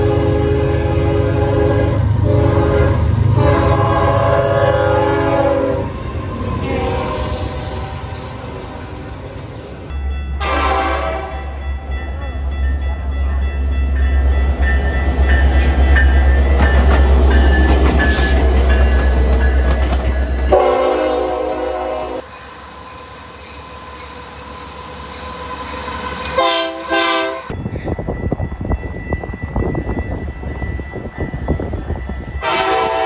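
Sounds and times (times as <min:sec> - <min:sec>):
locomotive horn blasts: 0:00.0 - 0:06.0, 0:06.6 - 0:08.2, 0:10.4 - 0:11.5, 0:20.5 - 0:22.2, 0:26.4 - 0:27.6, 0:32.4 - 0:33.0
rolling train cars: 0:00.0 - 0:33.0
train rumbling: 0:00.0 - 0:33.0.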